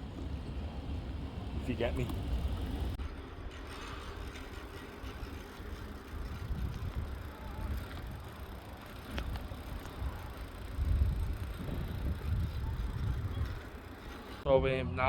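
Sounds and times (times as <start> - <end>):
bicycle tyre and road noise: 0.0 - 14.5
wind rumble on microphone: 3.7 - 8.4, 9.1 - 13.8.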